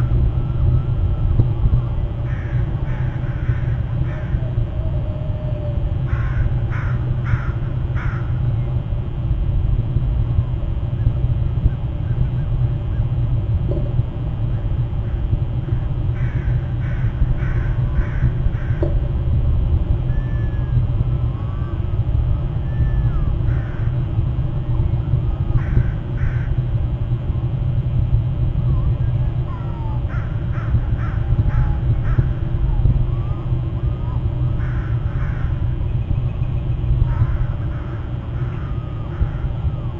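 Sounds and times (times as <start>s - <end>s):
bird calling: 0.0s - 8.8s, 14.4s - 18.8s, 20.0s - 26.6s, 28.8s - 39.9s
low rumble: 0.0s - 39.9s.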